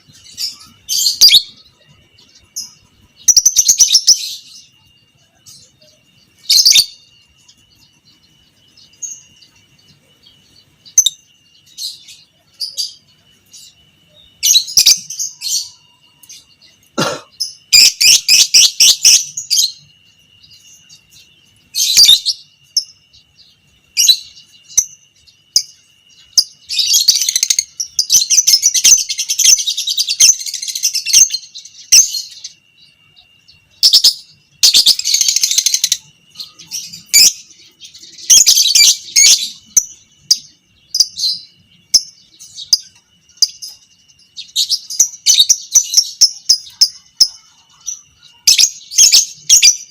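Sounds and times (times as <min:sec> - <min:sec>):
lovebird chattering trill: 0:00.0 - 0:08.2, 0:33.7 - 0:43.7
faint high whine: 0:00.0 - 0:49.9.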